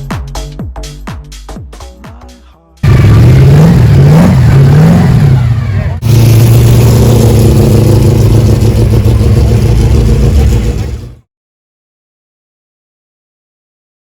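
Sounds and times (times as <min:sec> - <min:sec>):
car engine revving: 0:02.8 - 0:11.2.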